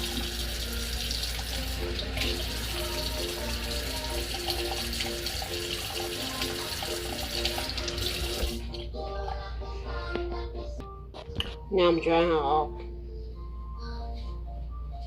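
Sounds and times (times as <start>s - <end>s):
water running from a tap: 0.0s - 8.8s
background music: 0.0s - 15.0s.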